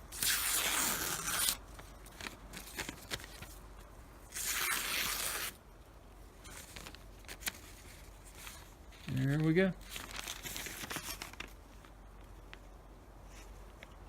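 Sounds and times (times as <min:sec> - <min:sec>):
knife slicing paper: 0:00.1 - 0:01.6, 0:04.3 - 0:05.6
paper rustle: 0:00.2 - 0:03.6, 0:06.4 - 0:12.7.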